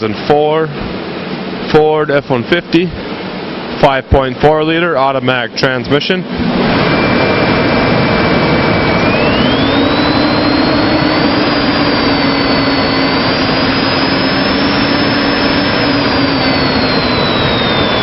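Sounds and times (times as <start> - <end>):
truck engine revving with whine: 6.2 - 18.0.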